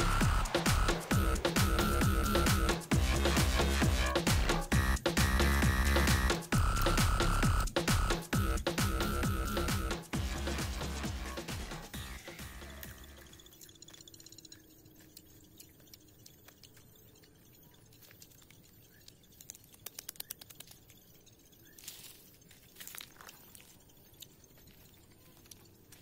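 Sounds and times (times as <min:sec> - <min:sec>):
sharp clicks: 0:11.8 - 0:26.0
faint clicks and taps: 0:13.3 - 0:21.3.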